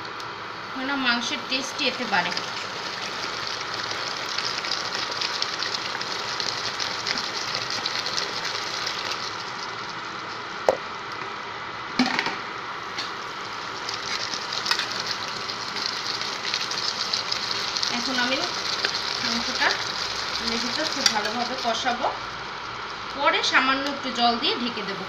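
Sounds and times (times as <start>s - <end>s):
chicken sizzling in oil: 1.4s - 10.6s, 12.8s - 23.6s.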